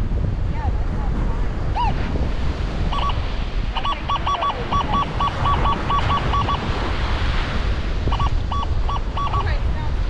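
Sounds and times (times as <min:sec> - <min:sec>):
surf: 0:00.0 - 0:10.0
wind: 0:00.0 - 0:10.0
metal detector beeping: 0:02.9 - 0:03.2, 0:03.8 - 0:06.7, 0:08.1 - 0:09.5.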